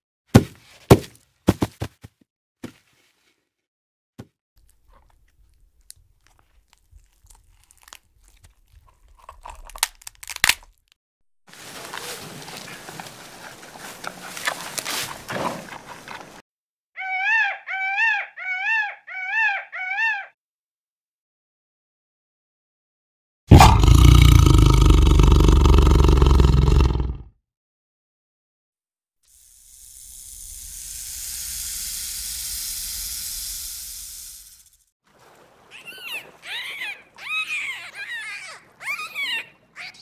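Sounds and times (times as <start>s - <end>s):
panda chewing bamboo: 4.6s - 10.8s, 11.6s - 16.4s
tortoise crunching grass: 4.6s - 10.9s, 11.5s - 16.4s
peacock calling: 17.0s - 20.4s, 35.6s - 40.0s.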